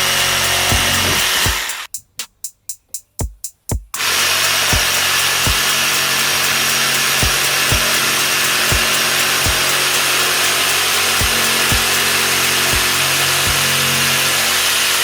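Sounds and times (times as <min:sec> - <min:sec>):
music with deep thudding beat: 0:00.0 - 0:14.6.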